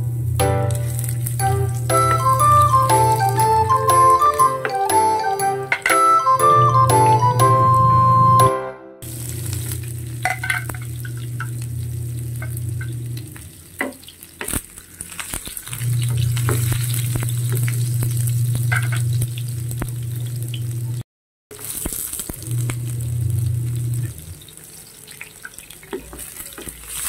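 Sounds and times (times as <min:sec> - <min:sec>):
low steady hum: 0:00.0 - 0:03.3, 0:09.1 - 0:13.7, 0:22.4 - 0:24.5
garlic and onion sizzling in oil: 0:00.0 - 0:05.8, 0:09.0 - 0:27.0.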